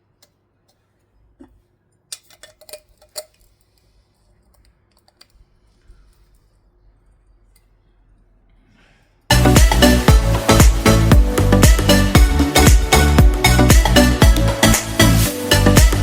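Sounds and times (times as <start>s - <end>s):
small plastic parts clicking: 2.0s - 6.5s.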